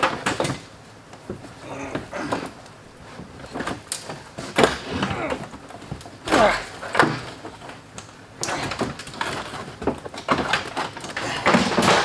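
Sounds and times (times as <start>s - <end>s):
carpet scraping and rustling: 1.2s - 7.9s.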